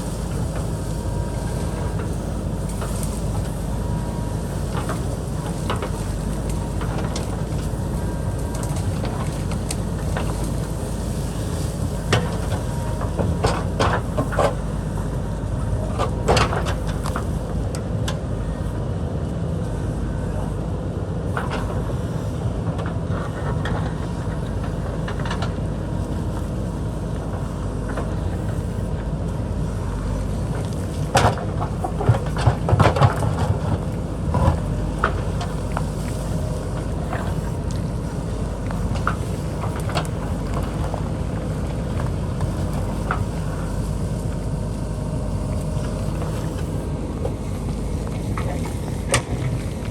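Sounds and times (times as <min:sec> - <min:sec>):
diesel engine running: 0:00.0 - 0:49.9
machine knocks and clanks: 0:30.5 - 0:44.6.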